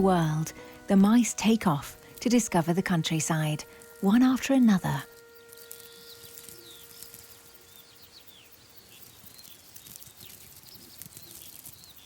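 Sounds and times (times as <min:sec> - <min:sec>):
faint held tone: 0:00.0 - 0:08.2
small birds chirping: 0:00.0 - 0:12.0
high clicks and rustle: 0:09.3 - 0:12.0.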